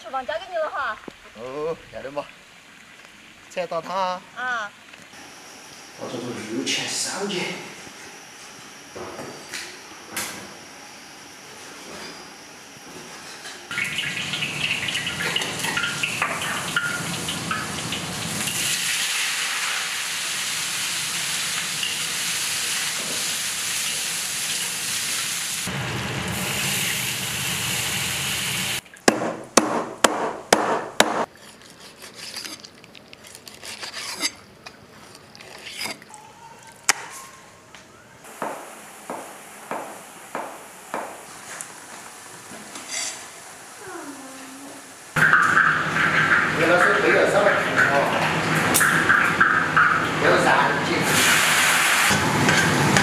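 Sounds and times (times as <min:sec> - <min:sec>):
meat sizzling in hot oil: 0:13.7 - 0:28.8, 0:45.0 - 0:53.0.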